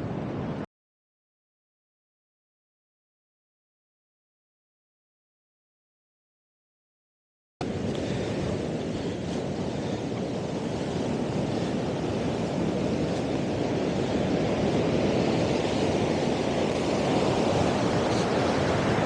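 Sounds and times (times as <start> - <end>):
ocean surf breaking: 7.6 - 19.0
wind buffeting microphone: 7.6 - 19.0.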